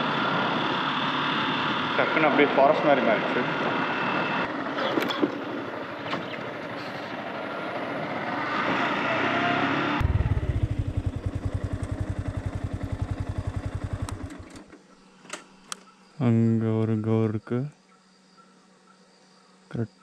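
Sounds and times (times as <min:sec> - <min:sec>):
road and wind noise: 0:00.0 - 0:14.7
motorcycle engine: 0:00.0 - 0:15.0
motorcycle engine idling: 0:10.0 - 0:15.0.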